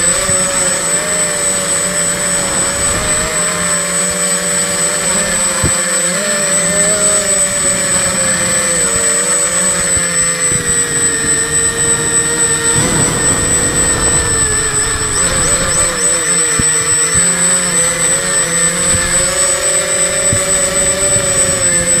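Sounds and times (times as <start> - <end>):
quadcopter propellers buzzing: 11.8 - 16.0.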